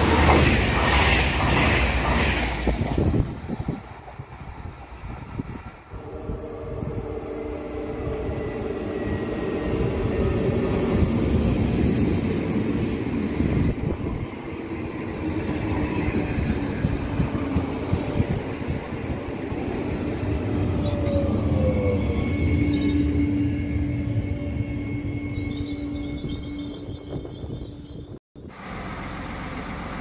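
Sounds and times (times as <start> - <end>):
train wheels on rails: 0.0 - 23.7.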